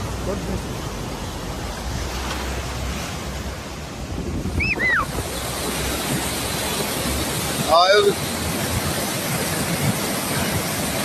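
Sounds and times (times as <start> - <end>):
floodwater rushing: 0.0 - 11.0
wind buffeting microphone: 1.8 - 11.0.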